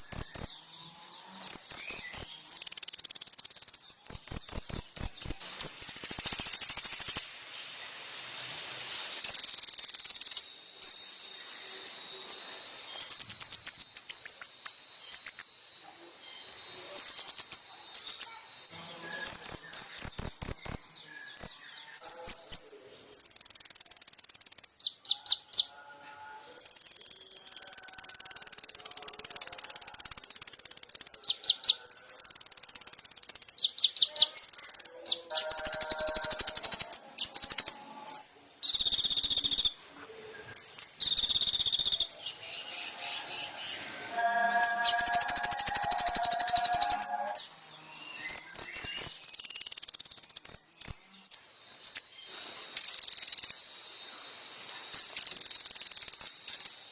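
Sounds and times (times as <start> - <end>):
buzzing bird trill: 0.0 - 7.2, 23.2 - 39.8, 40.6 - 50.4
sunbird singing high chirps: 0.0 - 56.9.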